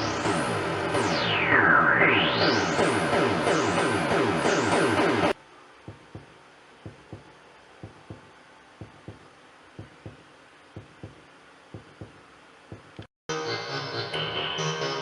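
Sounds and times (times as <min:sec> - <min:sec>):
synthesizer low thumps: 0:05.9 - 0:13.1.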